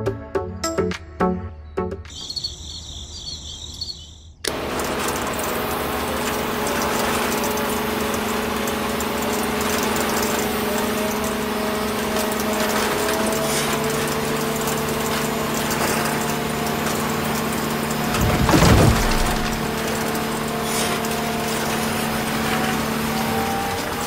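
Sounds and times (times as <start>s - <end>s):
electric motor humming: 4.4s - 24.0s
rough crushing noise: 11.9s - 23.9s.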